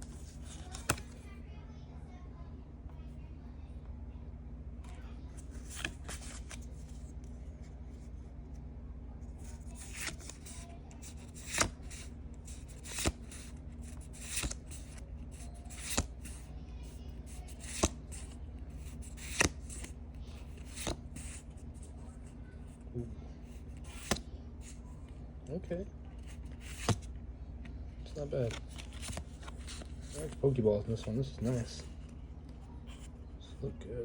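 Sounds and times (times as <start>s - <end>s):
steady low hum: 0.0s - 34.0s
trading cards snapping: 0.5s - 1.2s, 9.8s - 16.4s, 17.4s - 20.0s, 23.8s - 24.2s, 26.4s - 27.1s, 28.4s - 30.4s.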